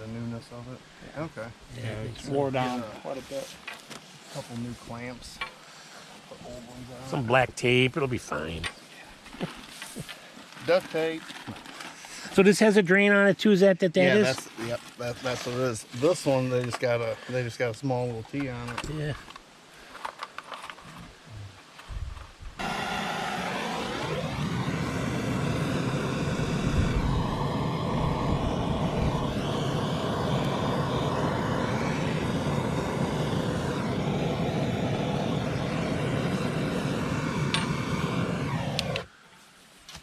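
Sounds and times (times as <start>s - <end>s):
engine revving and running: 22.6s - 39.1s.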